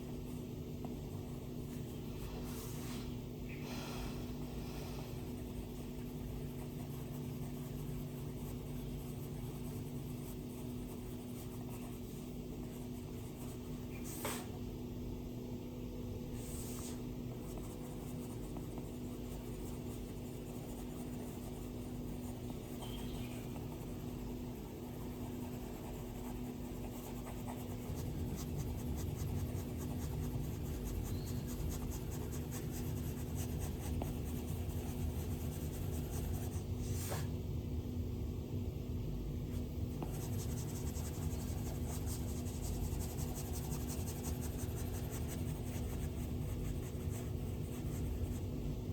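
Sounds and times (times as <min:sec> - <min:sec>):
steady low hum: 0:00.0 - 0:48.9
stylus scratching on glass screen: 0:24.8 - 0:37.2.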